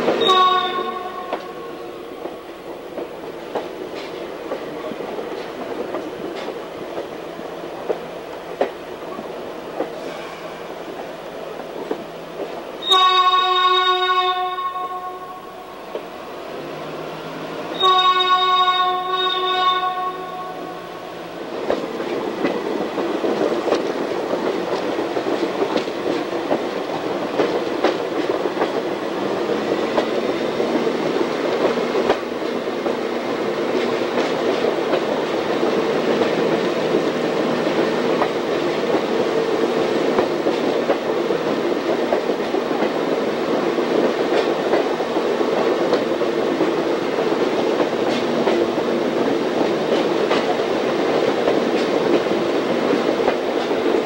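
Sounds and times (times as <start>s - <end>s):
train wheels rumbling on rails: 0.0s - 54.0s
wheels clicking over rail joints: 21.6s - 54.0s.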